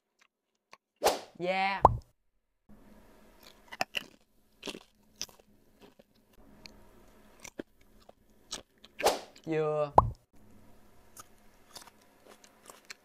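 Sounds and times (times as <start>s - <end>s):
crunching crispy snack: 3.4s - 6.4s, 11.2s - 13.0s.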